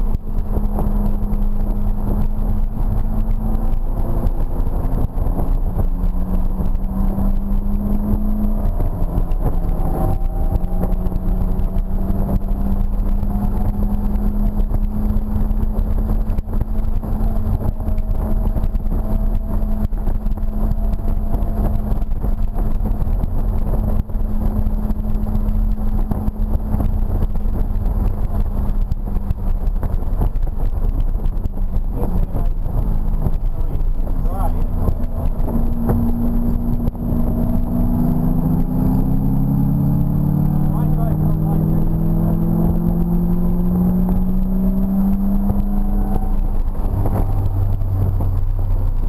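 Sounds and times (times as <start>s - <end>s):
car engine running hard: 0.0s - 49.0s
road noise rush: 0.0s - 49.0s.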